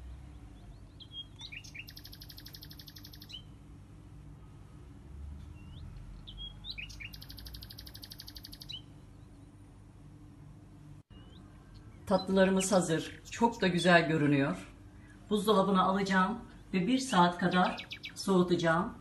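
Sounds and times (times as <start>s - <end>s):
songbird chirps and trill: 0.0s - 3.7s, 5.4s - 14.2s, 17.0s - 18.7s.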